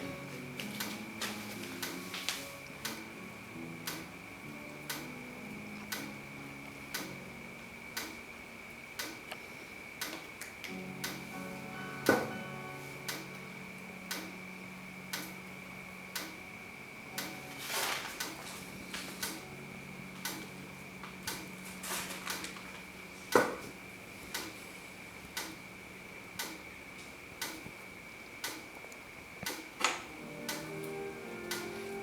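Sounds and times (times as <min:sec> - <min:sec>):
clock ticking: 0:00.0 - 0:08.3, 0:09.0 - 0:09.4, 0:10.0 - 0:14.5, 0:15.1 - 0:16.5, 0:17.1 - 0:17.6, 0:19.2 - 0:21.6, 0:24.3 - 0:24.6, 0:25.3 - 0:25.6, 0:26.3 - 0:26.7, 0:27.4 - 0:27.7, 0:28.4 - 0:28.8, 0:29.4 - 0:32.0
faint steady hum: 0:00.0 - 0:32.0.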